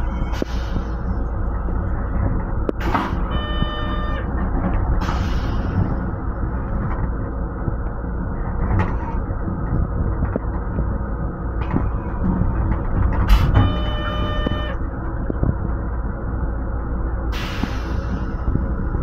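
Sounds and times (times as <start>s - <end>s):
railcar rumble: 0.0s - 19.0s
high ringing tone: 3.3s - 4.3s, 13.6s - 14.8s.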